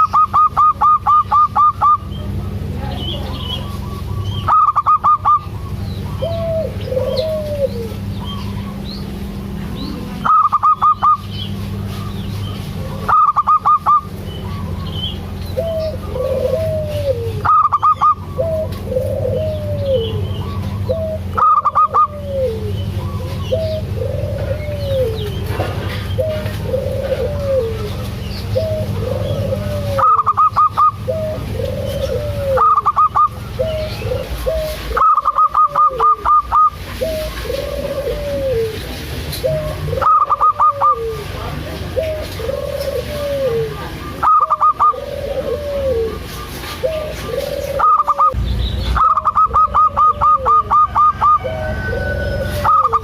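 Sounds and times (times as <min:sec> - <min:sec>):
doves cooing: 0:00.0 - 0:53.0
rapid staccato bird notes: 0:47.8 - 0:50.9.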